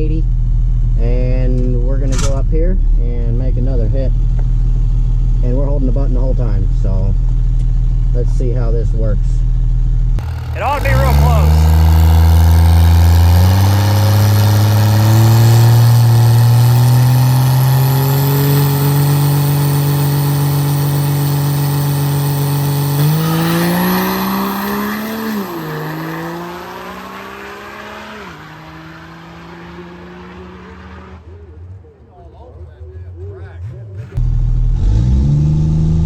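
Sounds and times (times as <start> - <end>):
diesel truck engine at full throttle: 10.2 - 29.2.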